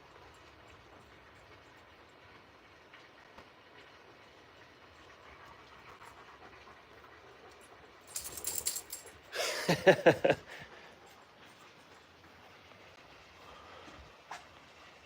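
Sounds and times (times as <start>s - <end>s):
rustling: 8.1s - 9.1s.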